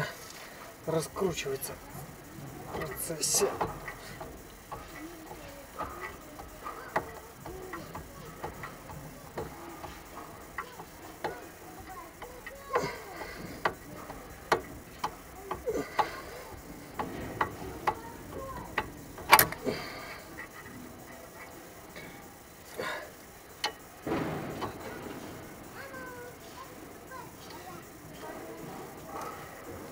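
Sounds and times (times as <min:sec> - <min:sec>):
wrench clicking and knocking on metal: 0:02.7 - 0:19.7.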